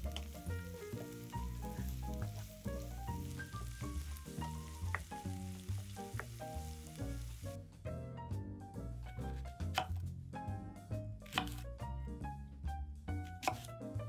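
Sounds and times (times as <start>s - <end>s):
food sizzling in oil: 0.0s - 7.6s
background music with bass line: 0.0s - 14.0s.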